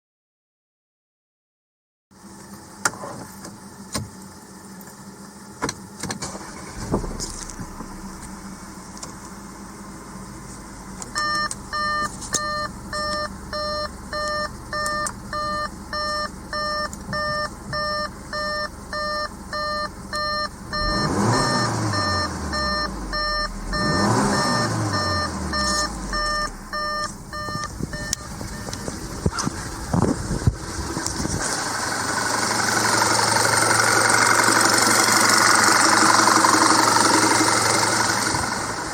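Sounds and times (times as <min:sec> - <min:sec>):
car engine starting and idling: 0:02.2 - 0:38.9
car engine revving: 0:06.2 - 0:15.9, 0:20.1 - 0:38.9
car warning chime beeping: 0:11.0 - 0:29.9.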